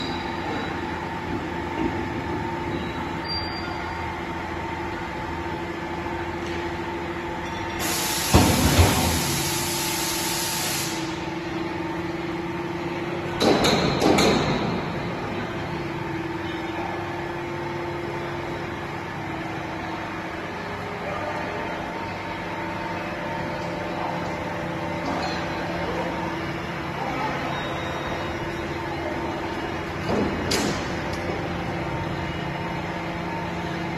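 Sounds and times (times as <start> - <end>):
hydraulic hissing: 7.8 - 11.2.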